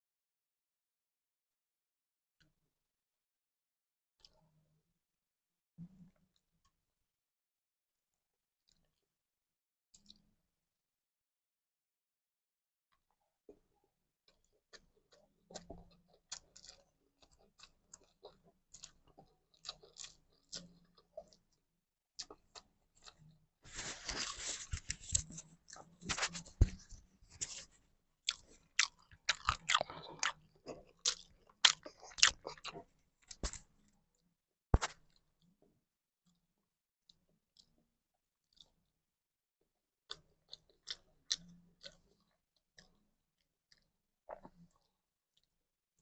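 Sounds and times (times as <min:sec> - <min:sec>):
person chewing food: 0:14.3 - 0:21.6, 0:22.2 - 0:34.2, 0:34.8 - 0:35.2, 0:38.4 - 0:38.8, 0:40.1 - 0:43.1, 0:43.7 - 0:45.5
crunchy bites: 0:28.3 - 0:33.7, 0:34.8 - 0:35.2.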